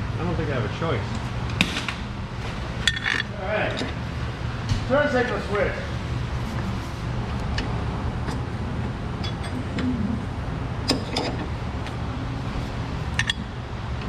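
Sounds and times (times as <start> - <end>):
steady low hum: 0.0 - 14.0
metal tools clinking: 2.8 - 4.0, 13.1 - 13.4.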